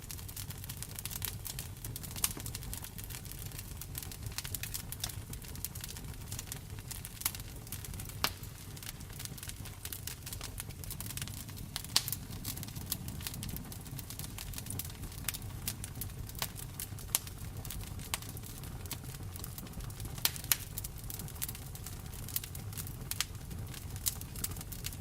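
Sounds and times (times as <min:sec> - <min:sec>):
wood fire crackling: 0:00.0 - 0:25.0
rain rumbling: 0:08.2 - 0:17.4.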